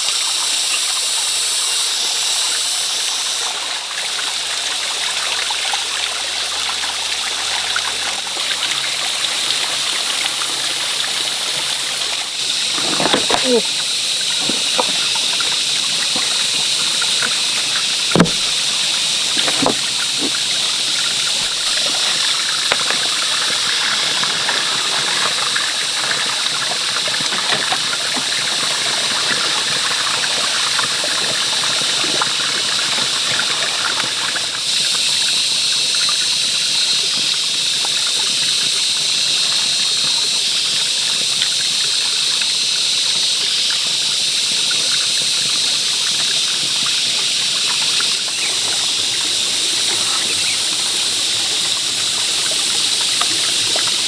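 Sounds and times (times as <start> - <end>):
running water: 0.0 - 54.0
sharp knocks: 18.1 - 18.6, 19.4 - 20.4.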